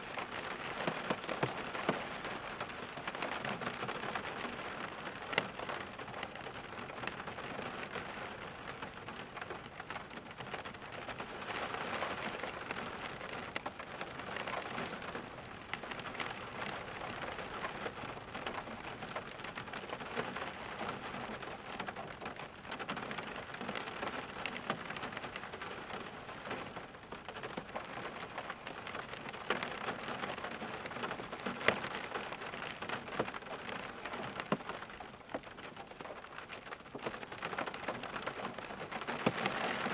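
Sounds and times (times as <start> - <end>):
rain pattering: 0.0 - 39.9
raindrops ticking: 0.0 - 39.9.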